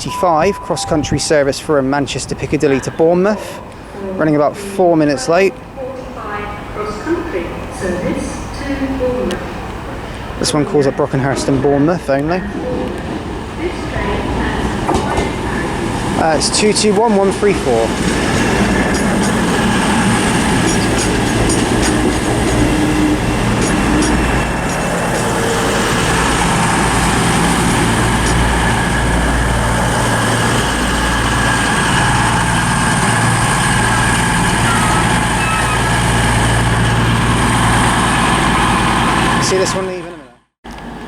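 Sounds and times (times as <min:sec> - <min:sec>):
diesel engines idling hum: 0:18.8 - 0:39.9.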